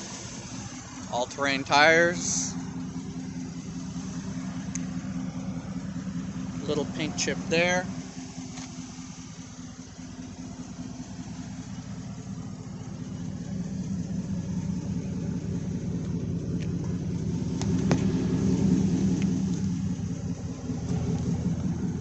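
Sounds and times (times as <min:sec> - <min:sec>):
pickup engine idling: 0:00.0 - 0:22.0.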